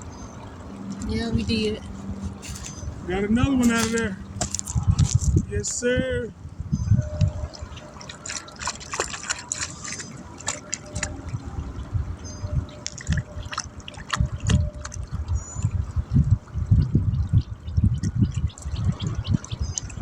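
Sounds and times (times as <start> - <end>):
water splashing and dripping: 0.0 - 5.6, 6.5 - 20.0.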